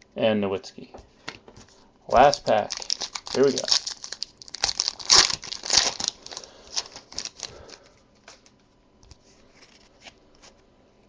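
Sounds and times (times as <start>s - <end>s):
card pack crinkling and sliding: 2.1s - 8.4s.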